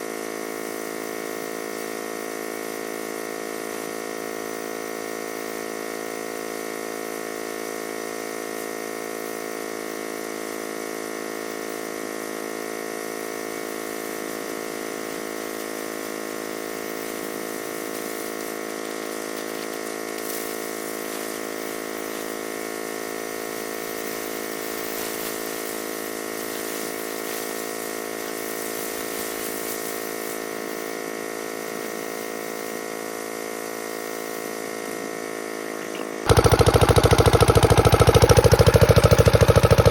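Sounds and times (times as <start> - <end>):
diesel engine running: 14.8 - 29.7, 31.5 - 39.9.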